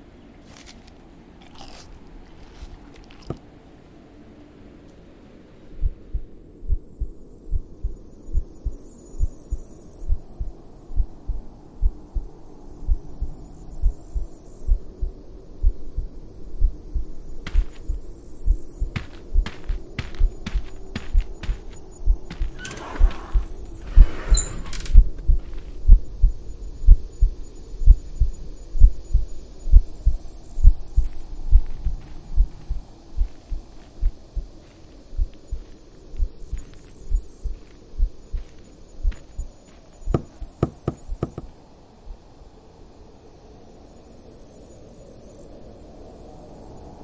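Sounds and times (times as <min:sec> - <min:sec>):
rustle: 0:00.0 - 0:05.8
faint low hiss: 0:00.0 - 0:46.9
heartbeat thumps: 0:05.8 - 0:12.3, 0:12.9 - 0:23.6, 0:25.0 - 0:34.6, 0:35.2 - 0:39.5
sharp knocks: 0:40.1 - 0:41.5.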